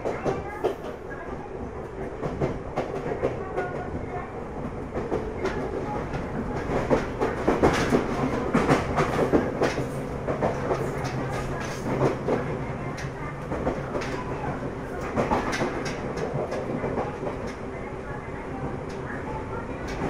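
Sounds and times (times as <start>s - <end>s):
train rumbling: 0.0s - 20.0s
wheels clacking over rail joints: 5.0s - 17.6s.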